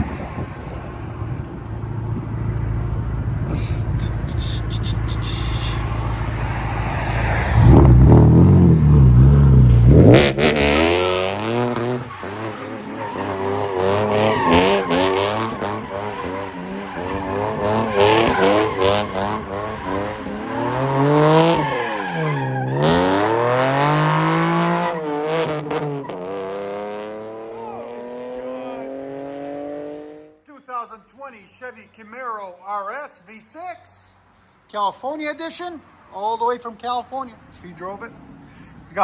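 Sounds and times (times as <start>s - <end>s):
car engine revving: 2.7s - 30.4s.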